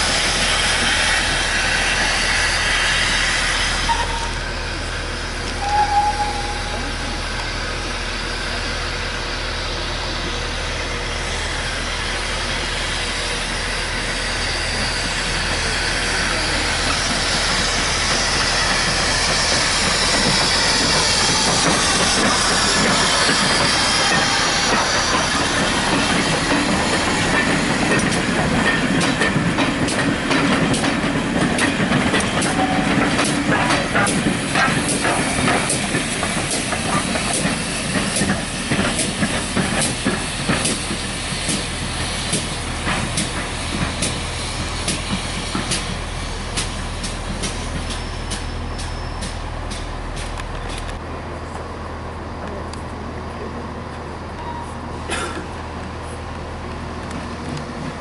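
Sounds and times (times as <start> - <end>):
steam hissing: 0.0 - 8.8, 11.1 - 49.0
train wheels clicking: 11.7 - 51.0.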